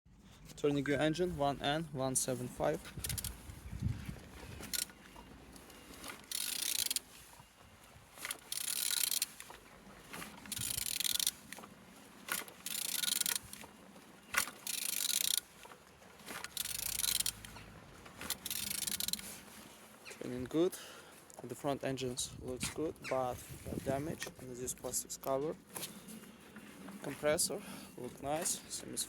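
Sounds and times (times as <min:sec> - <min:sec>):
engine turned over by hand: 0:16.2 - 0:19.4.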